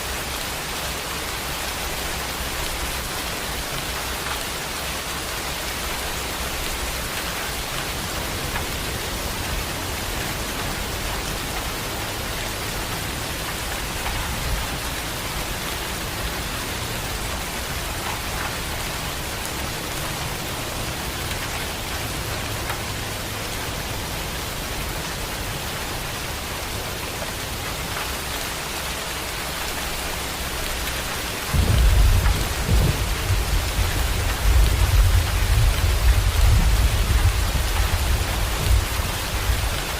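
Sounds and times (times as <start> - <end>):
heavy rain falling: 0.0 - 39.9
thunder rumbling: 31.4 - 39.9.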